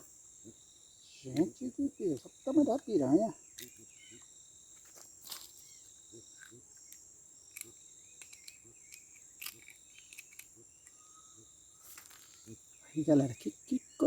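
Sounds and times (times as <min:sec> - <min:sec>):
faint chirps: 0:00.0 - 0:14.0
insect chorus trilling: 0:00.0 - 0:14.0
light clicks: 0:06.4 - 0:11.0.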